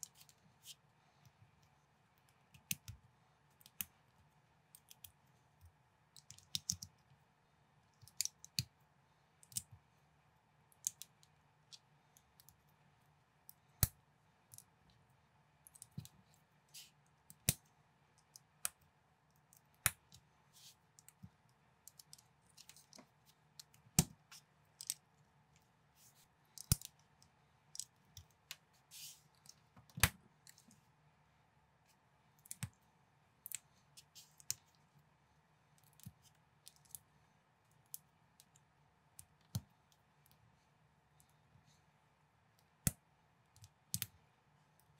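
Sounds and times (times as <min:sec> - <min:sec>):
faint steady hum: 0:00.0 - 0:44.9.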